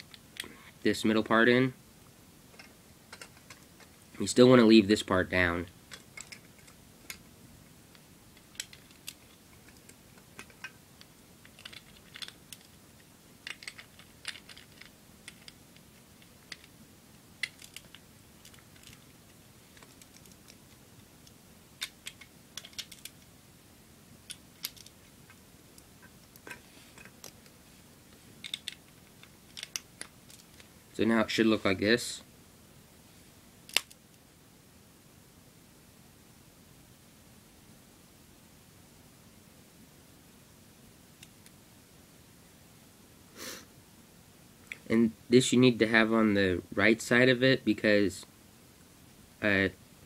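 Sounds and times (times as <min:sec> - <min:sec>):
plastic bricks clicking together: 0:11.4 - 0:12.8, 0:13.4 - 0:15.6, 0:21.8 - 0:23.2, 0:28.4 - 0:30.7.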